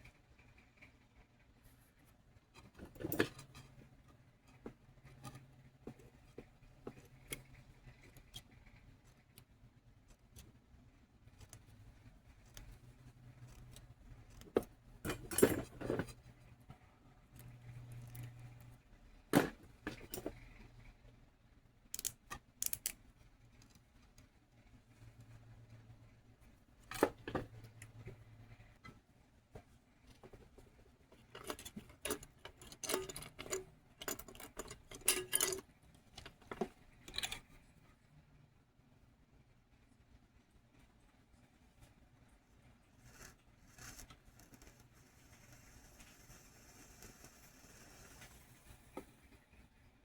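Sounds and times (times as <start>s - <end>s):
small metal tools clinking: 31.3s - 35.6s.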